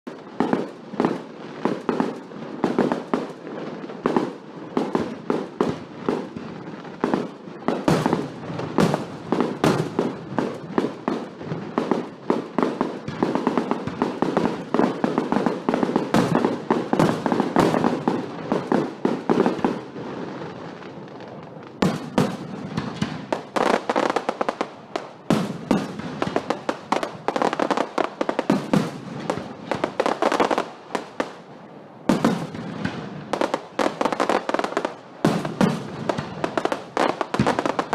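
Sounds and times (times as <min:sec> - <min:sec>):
fireworks banging and crackling: 0:00.0 - 0:37.9.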